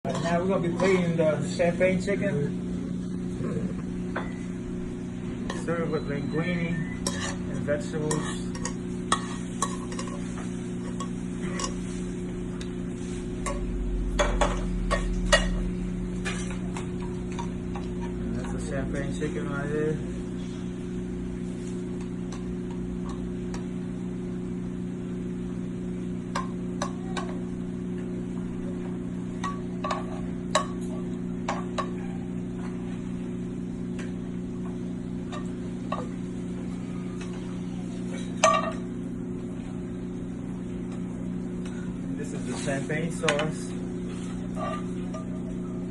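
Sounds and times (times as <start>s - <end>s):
steady low hum: 0.0s - 45.9s
utensils clinking on plate and pan: 0.1s - 1.3s, 5.4s - 12.2s, 13.0s - 19.2s, 29.4s - 32.2s, 42.6s - 45.4s.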